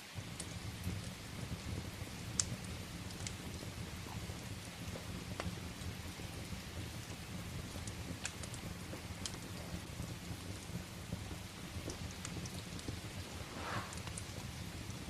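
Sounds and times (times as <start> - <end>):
steady rain: 0.0 - 15.0
wood fire crackling: 0.0 - 15.0
low rumble: 13.0 - 14.4.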